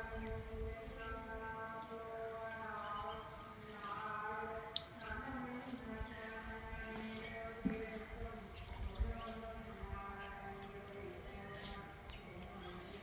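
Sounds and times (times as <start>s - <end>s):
small bird chirping: 6.0s - 13.0s.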